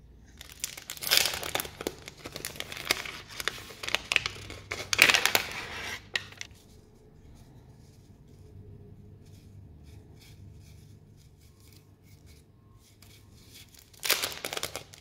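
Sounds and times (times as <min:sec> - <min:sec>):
packaging crinkling and rustling: 0:00.3 - 0:06.8, 0:13.6 - 0:15.0.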